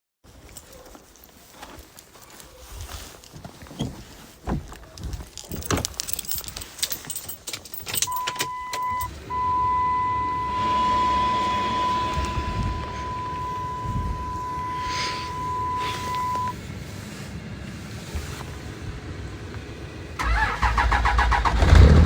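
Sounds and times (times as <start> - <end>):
keys jangling: 4.8 - 9.1
diesel engine starting and idling: 8.0 - 22.0
electronic warning chime: 8.1 - 16.6.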